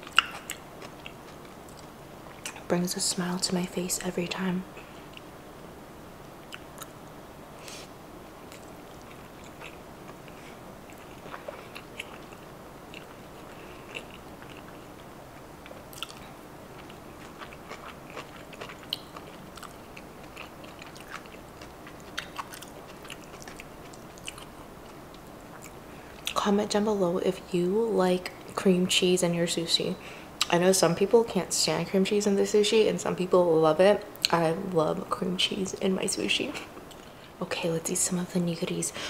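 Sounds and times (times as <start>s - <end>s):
person chewing food: 0.0s - 2.6s, 8.5s - 26.4s.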